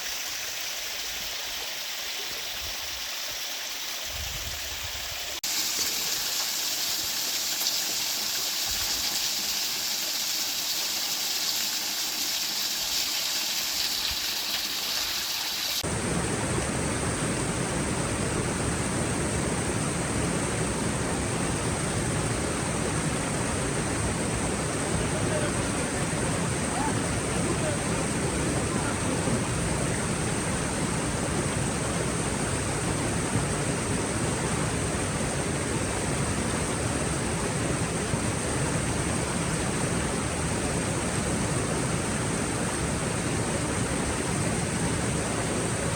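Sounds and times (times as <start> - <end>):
stream water rushing: 0.0 - 19.4.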